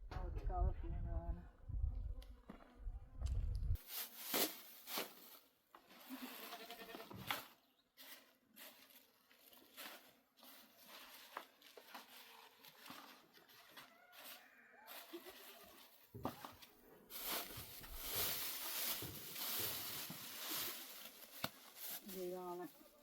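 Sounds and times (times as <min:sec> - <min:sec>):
sheep and goats bleating: 0:06.0 - 0:07.3, 0:14.1 - 0:15.9.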